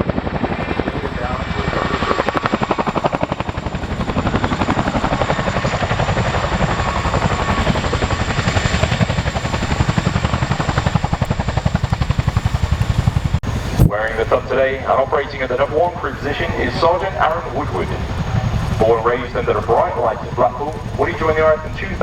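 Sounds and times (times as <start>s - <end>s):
helicopter rotors beating: 0.0s - 22.0s.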